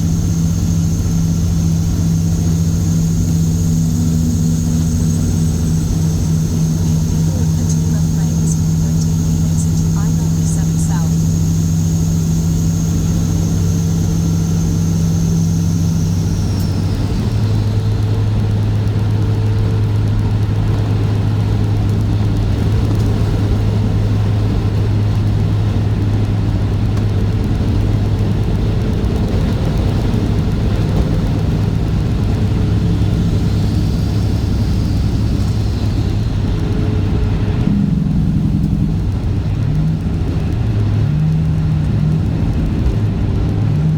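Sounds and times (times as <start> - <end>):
high turbo whistle: 0.0 - 18.6, 29.8 - 40.0
diesel truck engine running: 0.0 - 43.9.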